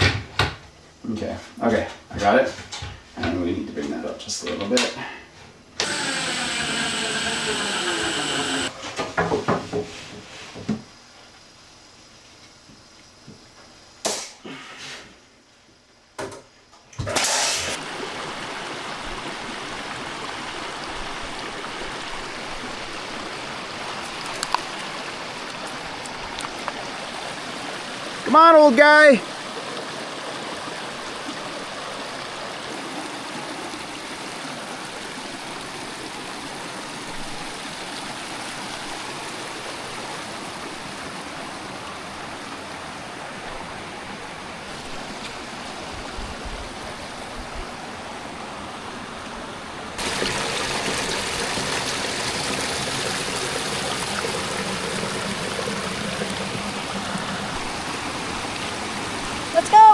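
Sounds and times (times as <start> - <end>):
rushing creek water: 5.8 - 8.8, 17.7 - 59.9.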